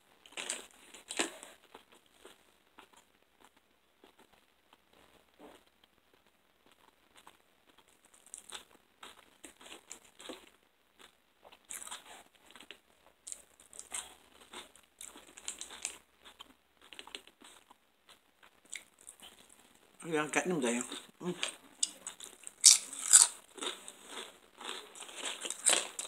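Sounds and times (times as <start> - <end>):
person chewing crunchy food: 0.2 - 4.4, 5.6 - 20.0, 20.8 - 26.0.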